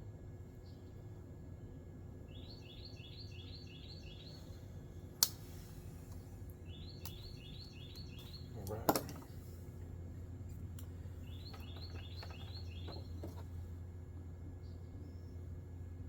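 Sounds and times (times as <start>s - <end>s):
low hum: 0.0s - 16.0s
bird chirping: 2.3s - 4.7s, 6.6s - 9.2s, 11.0s - 13.4s.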